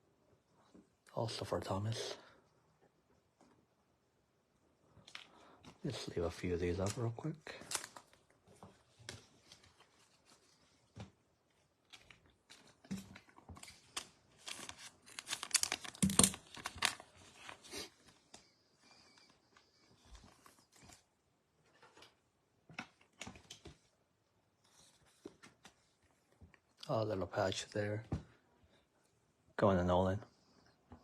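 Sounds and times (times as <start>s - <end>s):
plastic packaging crinkling: 5.9s - 8.4s, 11.8s - 18.4s.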